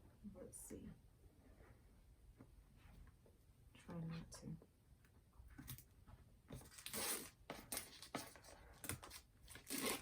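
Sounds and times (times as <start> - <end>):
box packaging rustling: 6.6 - 10.0.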